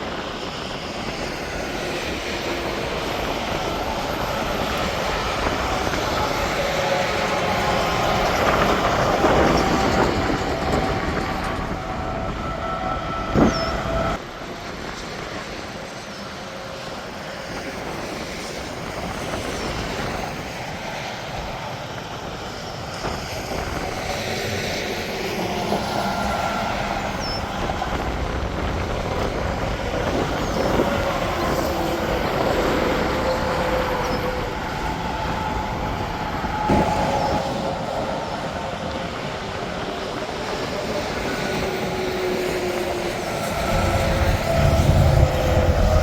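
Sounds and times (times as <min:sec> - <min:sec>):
highway traffic rushing: 0:00.0 - 0:46.0.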